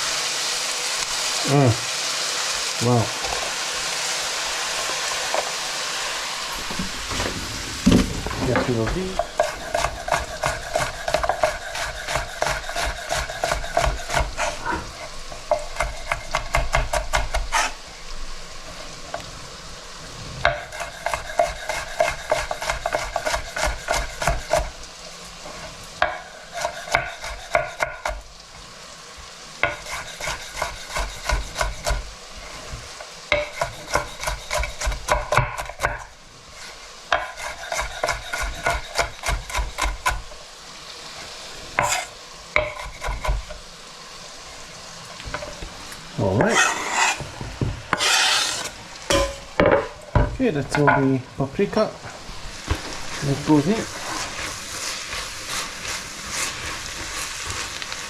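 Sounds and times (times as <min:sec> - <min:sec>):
food sizzling in a pan: 0:00.0 - 0:58.0
utensil scraping a ringing pan: 0:46.4 - 0:47.2, 0:47.9 - 0:49.6.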